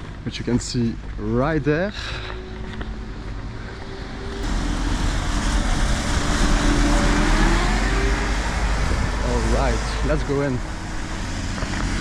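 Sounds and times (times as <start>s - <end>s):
faint engine tone rising: 3.4s - 9.4s
vehicle passing close by: 3.8s - 12.0s.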